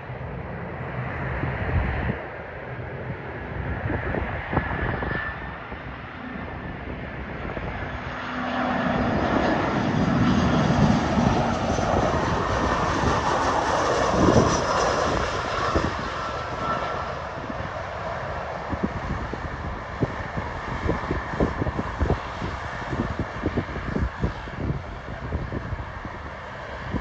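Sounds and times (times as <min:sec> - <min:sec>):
airliner engines passing by: 0:00.0 - 0:27.0.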